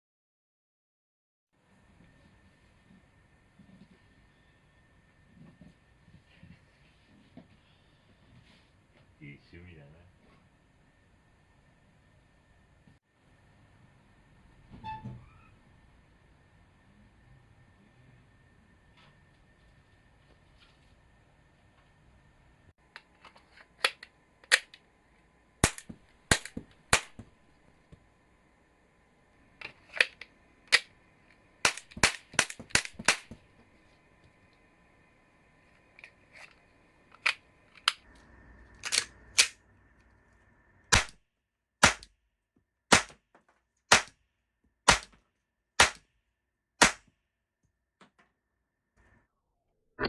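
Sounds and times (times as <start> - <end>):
toy gun cap shots cracking: 25.6 - 27.2, 31.6 - 33.4.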